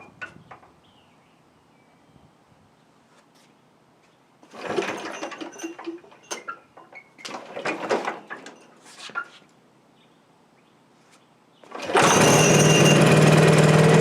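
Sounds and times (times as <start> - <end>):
mower engine recoil cranking: 4.5 - 8.6, 11.7 - 14.0.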